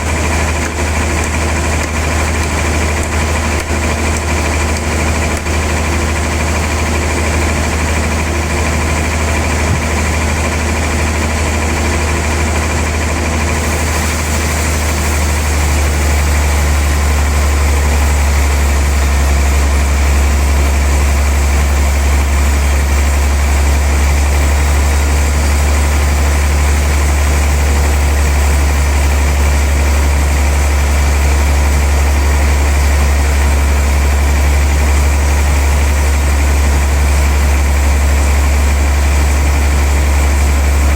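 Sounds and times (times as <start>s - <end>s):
sawmill machinery humming: 0.0s - 40.9s
hiss: 13.5s - 18.8s.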